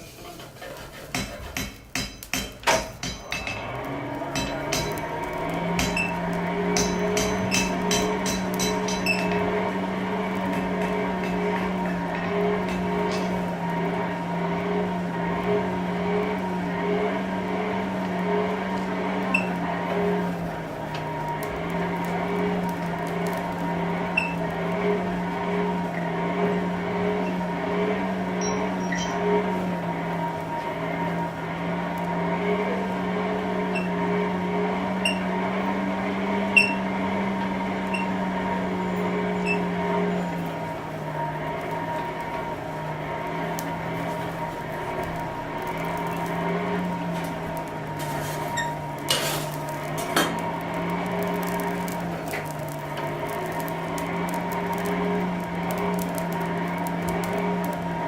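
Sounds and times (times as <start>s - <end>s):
hammer striking anvil: 1.1s - 9.6s, 10.6s - 13.5s
machine hum: 2.1s - 58.0s.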